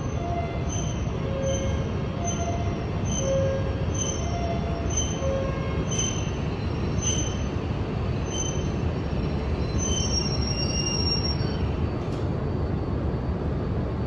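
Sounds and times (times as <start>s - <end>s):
high-pitched brake squeals: 0.0s - 7.6s, 8.2s - 11.8s
train rumbling: 0.0s - 14.0s.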